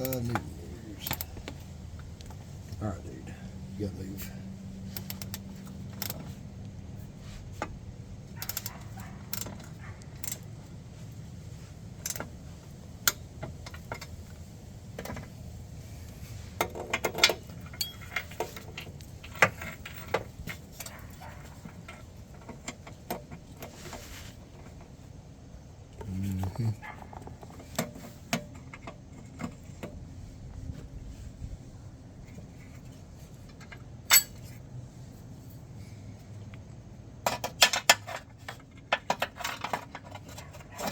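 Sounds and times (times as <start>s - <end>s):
metal tools clinking: 0.0s - 1.4s, 17.0s - 22.0s, 34.1s - 34.6s
steady low hum: 0.0s - 16.7s.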